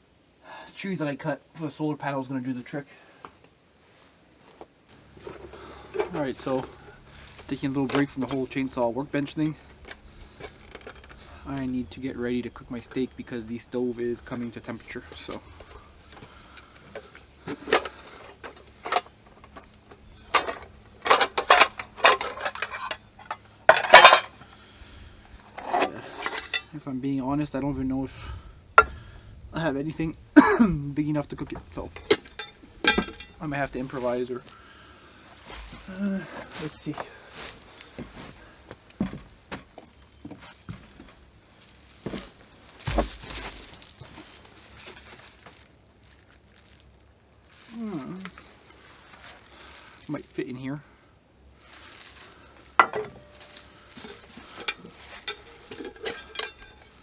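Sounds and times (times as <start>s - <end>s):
cookware being rummaged: 5.2s - 8.5s, 16.9s - 24.5s, 25.4s - 26.7s, 31.8s - 34.2s, 42.9s - 45.4s, 51.8s - 57.0s
pots and pans clattering: 17.5s - 19.7s, 20.3s - 24.5s, 25.5s - 26.7s, 32.0s - 33.4s, 52.8s - 57.0s.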